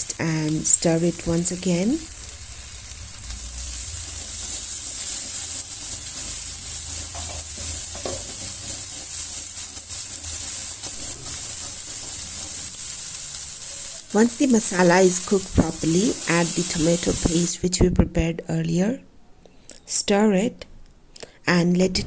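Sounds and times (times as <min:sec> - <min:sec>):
spices sizzling in hot oil: 0:00.0 - 0:18.1.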